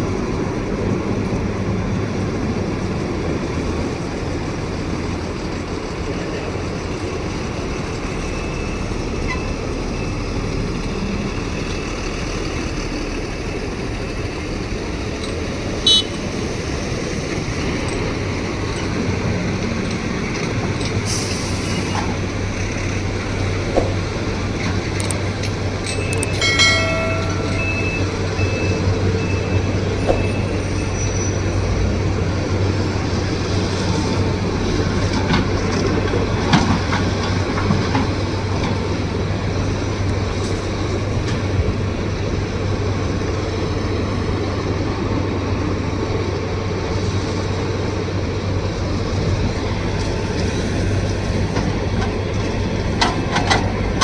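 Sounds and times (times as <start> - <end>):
excavator diesel engine running: 0.0 - 54.0
metallic squeal: 6.2 - 14.6, 25.7 - 31.7.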